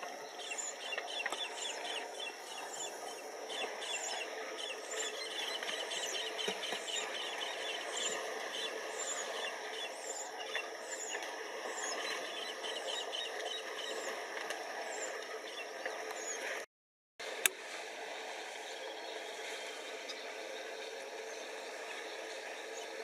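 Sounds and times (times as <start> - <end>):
steady background hiss: 0.0 - 16.6.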